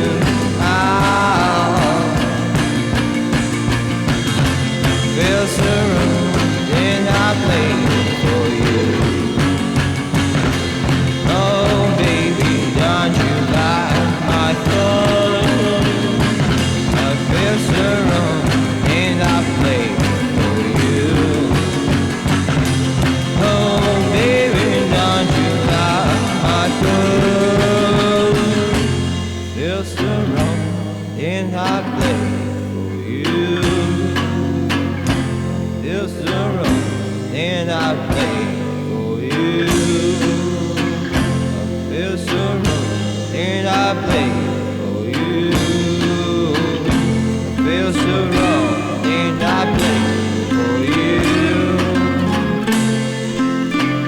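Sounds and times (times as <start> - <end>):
guitar: 0.0 - 54.0
rock music with singing: 0.0 - 54.0
steady drum beat: 0.0 - 54.0.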